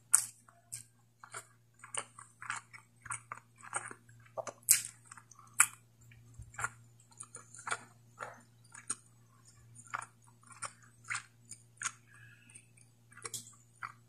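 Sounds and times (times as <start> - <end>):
person chewing with wet clicks: 0.0 - 14.0.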